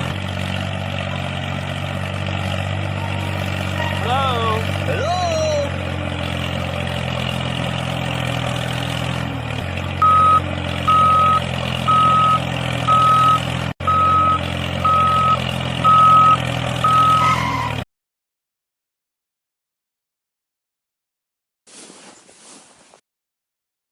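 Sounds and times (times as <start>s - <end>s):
vehicle engine running: 0.0s - 17.8s
reversing beeper: 10.0s - 17.8s.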